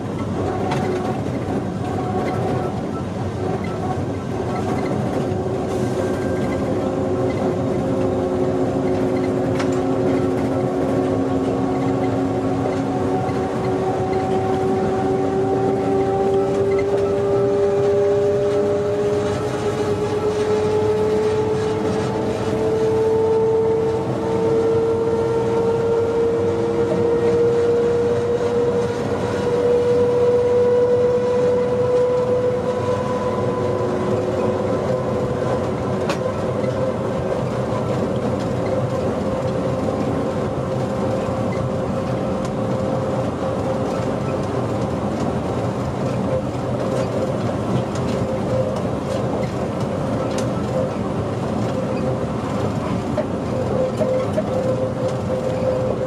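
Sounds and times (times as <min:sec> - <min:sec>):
wheels rumbling on track: 0:00.0 - 0:56.0
electric train motor whine: 0:05.2 - 0:46.8.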